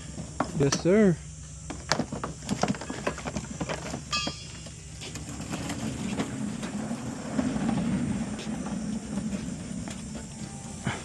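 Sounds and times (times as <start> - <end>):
low rumble: 5.7 - 10.9.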